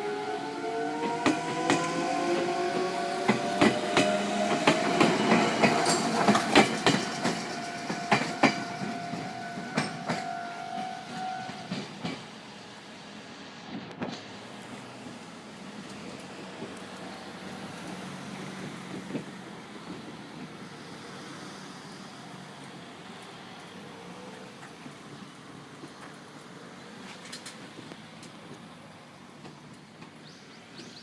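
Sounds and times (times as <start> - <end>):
train wheels clacking over rail joints: 1.0 - 12.4, 17.8 - 20.6.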